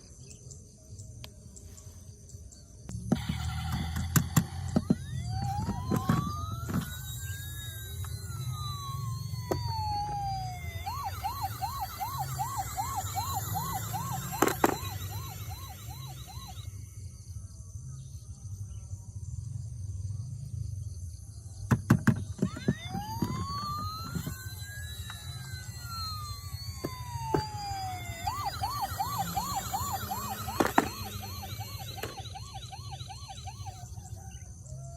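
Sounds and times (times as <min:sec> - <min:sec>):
low hum: 0:01.0 - 0:21.6, 0:22.2 - 0:34.1
toy electronic siren: 0:02.9 - 0:17.4, 0:21.7 - 0:34.9.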